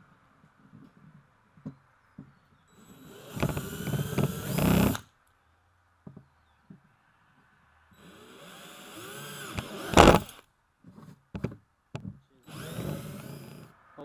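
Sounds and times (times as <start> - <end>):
power drill drilling plastic: 2.7 - 5.0, 8.0 - 10.4, 12.4 - 13.7.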